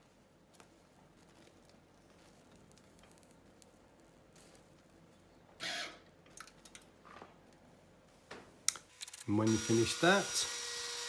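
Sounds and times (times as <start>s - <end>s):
small crackles: 0.0s - 5.3s
welder sizzling: 9.3s - 11.0s.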